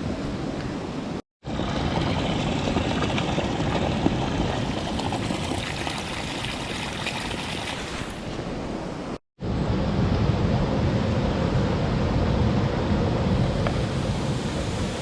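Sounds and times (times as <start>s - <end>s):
stream water rushing: 1.4s - 9.2s.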